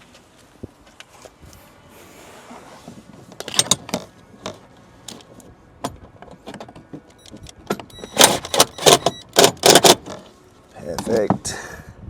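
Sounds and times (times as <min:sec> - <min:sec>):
sharp clicks and metallic clinks: 0:03.4 - 0:10.2.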